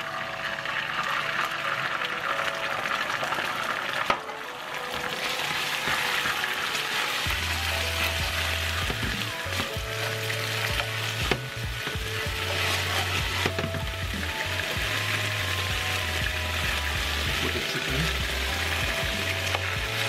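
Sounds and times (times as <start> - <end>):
garlic sizzling in hot oil: 0.0 - 20.0
wooden spoon stirring: 4.9 - 20.0.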